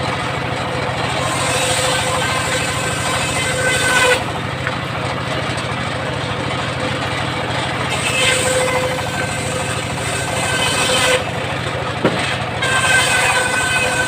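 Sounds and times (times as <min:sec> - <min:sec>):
circular saw running: 0:00.0 - 0:14.0
high saw whine: 0:00.0 - 0:14.0
short knock: 0:12.0 - 0:12.3.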